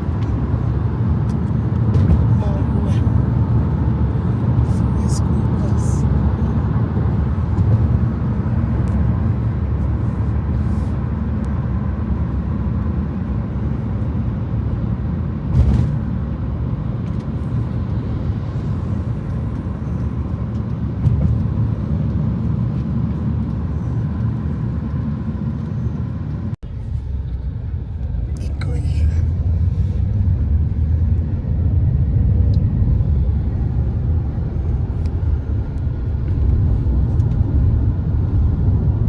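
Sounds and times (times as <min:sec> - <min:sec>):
car engine and tyre noise: 0:00.0 - 0:39.0.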